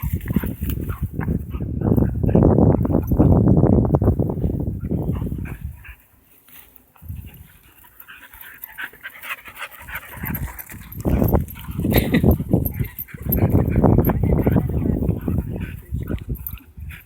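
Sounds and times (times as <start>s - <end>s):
dog panting: 7.0s - 17.0s.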